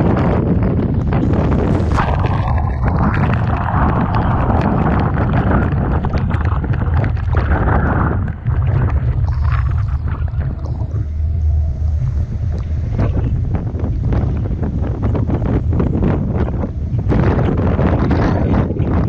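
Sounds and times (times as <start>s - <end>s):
rough sea washing: 0.0s - 19.0s
wind buffeting microphone: 0.0s - 19.0s.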